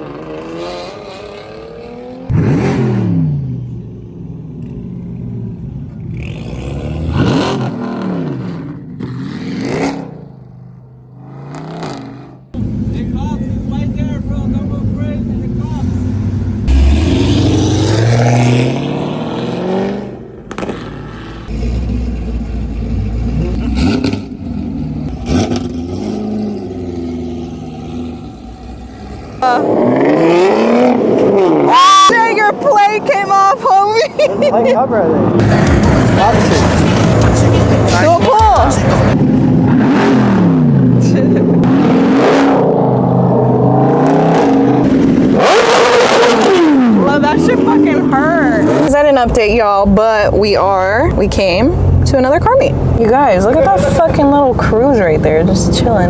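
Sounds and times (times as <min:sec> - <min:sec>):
car engines revving: 0:00.0 - 0:56.0
loud sound with shifting pitch: 0:35.3 - 0:40.8.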